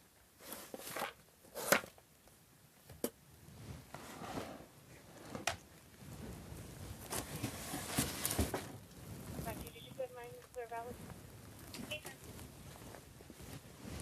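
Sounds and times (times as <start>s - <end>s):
handling rustles: 3.6s - 9.9s.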